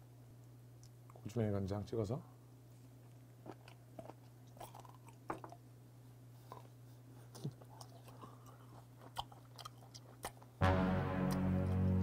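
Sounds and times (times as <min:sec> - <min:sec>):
wet chewing: 0:03.1 - 0:05.6, 0:06.4 - 0:10.6.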